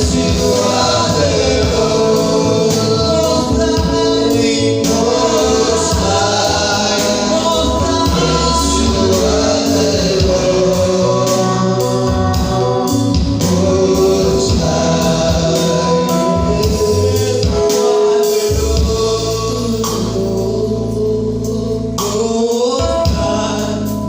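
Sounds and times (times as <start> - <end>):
held bass notes: 0.0 - 17.7, 18.5 - 24.0
choir singing gospel: 0.0 - 24.0.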